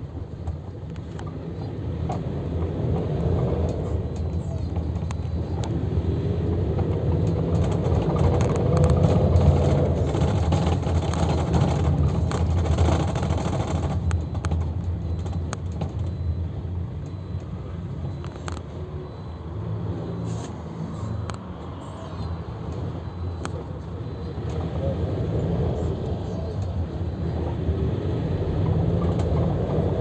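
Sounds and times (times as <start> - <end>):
engine and road rumble: 0.0 - 30.0
small interior rattles: 6.6 - 16.3.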